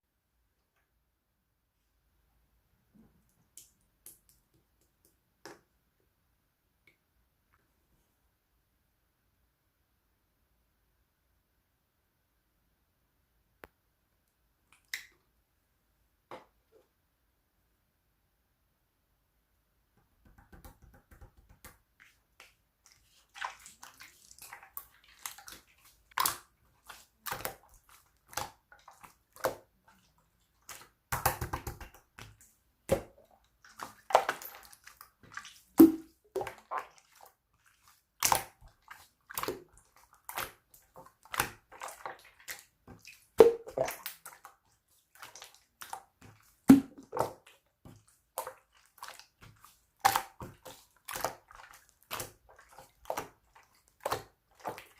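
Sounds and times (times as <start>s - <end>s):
slime squishing by hand: 20.5s - 54.9s.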